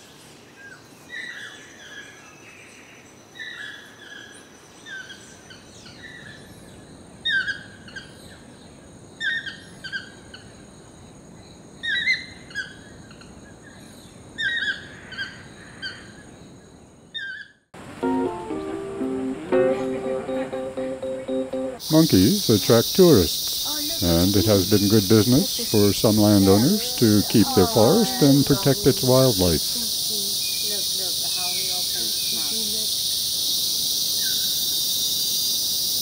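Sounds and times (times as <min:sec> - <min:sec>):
faint high-pitched tones: 0:17.8 - 0:29.8
high chirping animal calls: 0:21.8 - 0:32.6.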